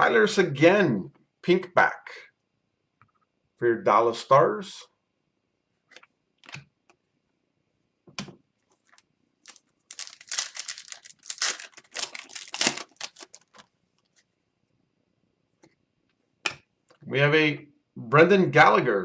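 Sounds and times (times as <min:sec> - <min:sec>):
foil wrapper tearing and crinkling: 0:09.5 - 0:13.7.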